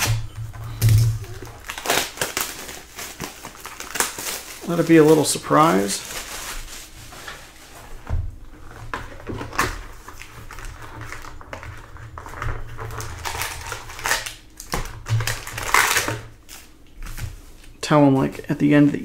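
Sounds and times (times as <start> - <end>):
cards and plastic packaging rustling: 0.0 - 8.0, 8.6 - 19.0.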